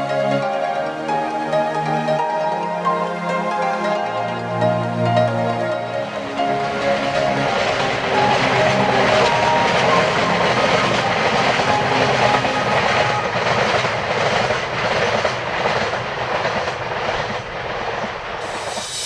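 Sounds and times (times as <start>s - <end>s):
background music: 0.0s - 12.9s.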